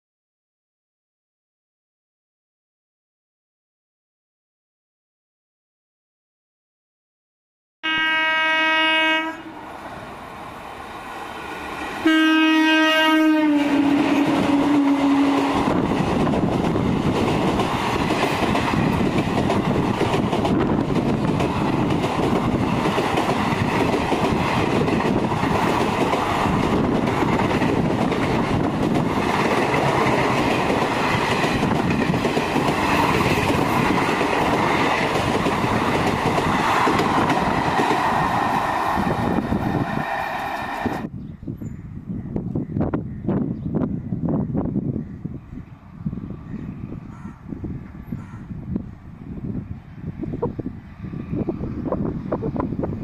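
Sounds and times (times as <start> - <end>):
train horn blasts: 7.8 - 9.6, 12.0 - 15.7
passenger coaches rumbling past: 7.9 - 53.0.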